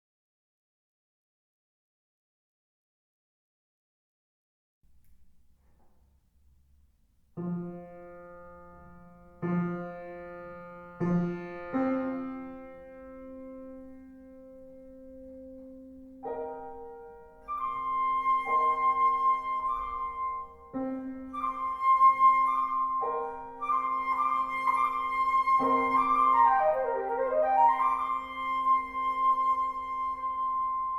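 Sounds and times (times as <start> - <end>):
piano chords: 7.4 - 30.9.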